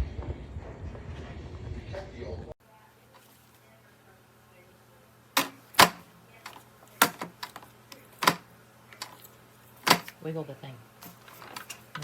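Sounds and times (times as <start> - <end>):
plastic vacuum parts knocking: 5.4 - 8.4, 9.8 - 10.2.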